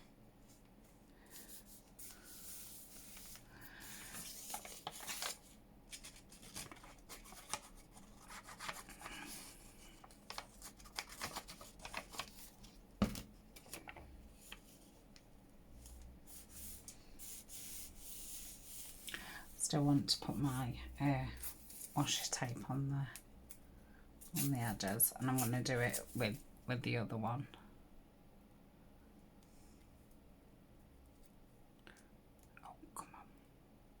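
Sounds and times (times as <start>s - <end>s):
paper rustling and rubbing: 0.5s - 15.0s, 16.2s - 19.1s, 24.2s - 26.4s.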